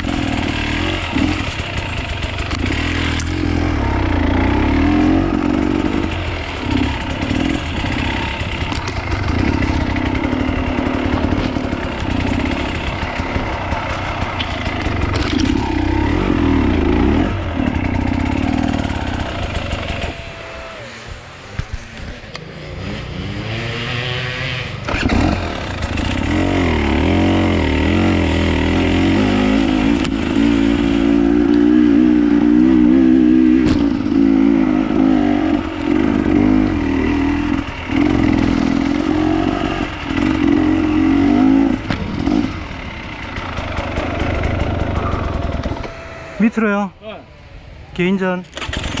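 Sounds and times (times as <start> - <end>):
dirt bike engine revving: 0.0 - 47.0
knocks and clatter: 6.0 - 15.8.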